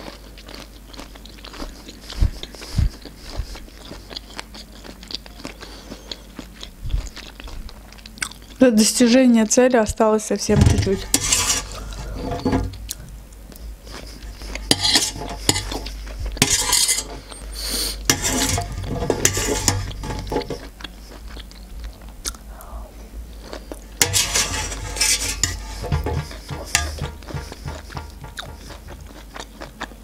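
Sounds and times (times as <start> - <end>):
metal fork scraping a steel tray: 10.6 - 12.7, 14.7 - 17.4, 18.1 - 20.7, 24.0 - 29.1.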